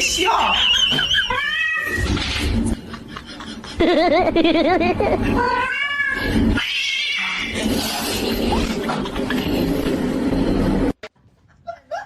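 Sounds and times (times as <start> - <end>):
cat yowling: 1.2 - 2.0.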